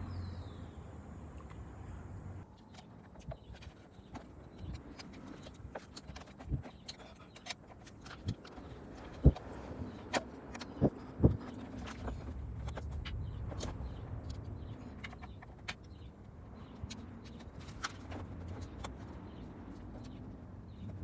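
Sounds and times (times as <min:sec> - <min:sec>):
steady low rumble: 0:08.2 - 0:21.0.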